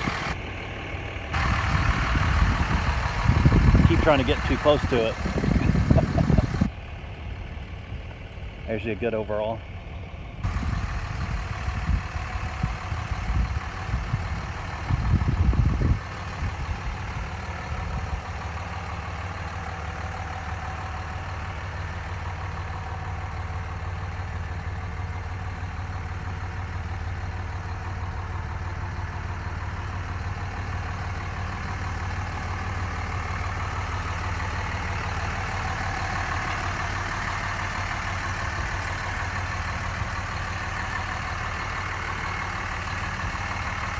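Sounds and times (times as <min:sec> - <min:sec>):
diesel engine idling: 0:00.0 - 0:43.9
wind buffeting on microphone: 0:01.4 - 0:06.7, 0:10.4 - 0:18.2.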